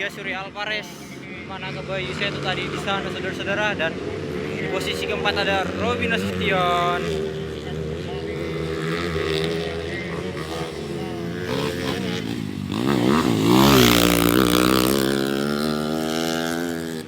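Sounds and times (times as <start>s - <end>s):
motorcycle engines racing: 0.0s - 17.0s.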